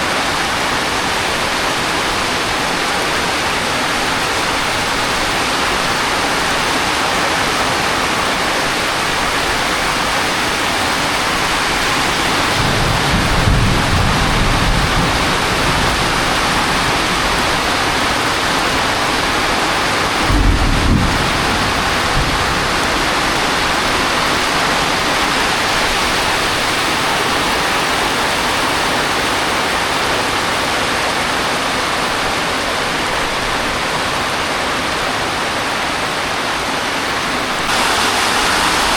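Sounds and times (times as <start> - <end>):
heavy rain: 0.0 - 38.9
thunder rumbles: 11.0 - 26.1.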